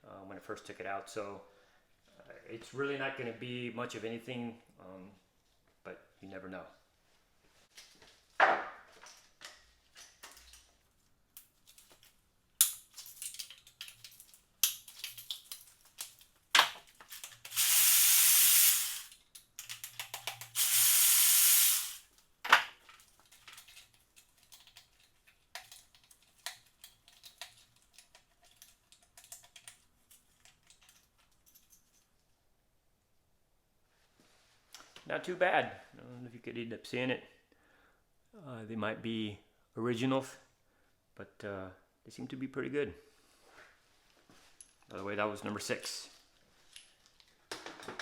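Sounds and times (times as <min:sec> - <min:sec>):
loud hissing sprays: 0:17.5 - 0:19.1, 0:20.6 - 0:22.0
metal tools clicking and knocking: 0:22.9 - 0:32.1.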